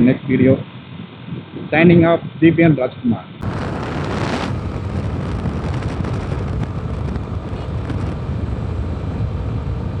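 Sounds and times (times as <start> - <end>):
motorcycle engine: 3.4 - 10.0
road noise: 3.4 - 10.0
wind rumble on microphone: 3.4 - 10.0.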